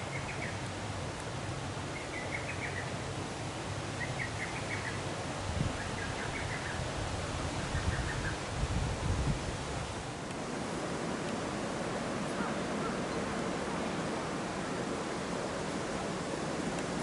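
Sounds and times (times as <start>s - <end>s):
small bird twittering: 1.9s - 2.9s, 4.0s - 5.0s.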